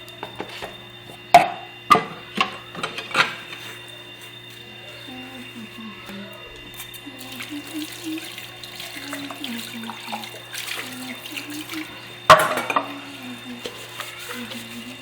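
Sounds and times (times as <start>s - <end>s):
dishes clinking and clattering: 0.2s - 3.7s, 8.8s - 15.0s
tap water running into a sink: 6.6s - 15.0s.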